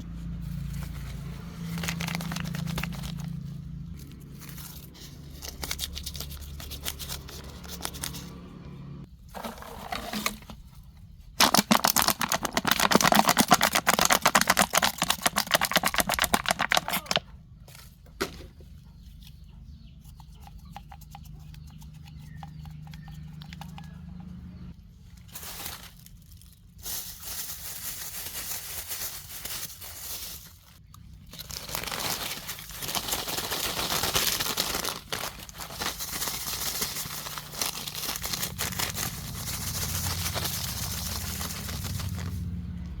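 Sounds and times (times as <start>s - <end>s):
plastic trash crinkling: 0.2s - 6.3s, 9.1s - 17.2s, 25.1s - 43.0s.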